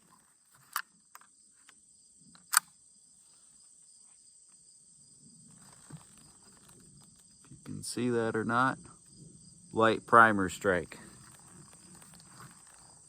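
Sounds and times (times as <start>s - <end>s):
crickets trilling: 0.0s - 13.0s
rifle action metallic clicks: 2.4s - 2.8s.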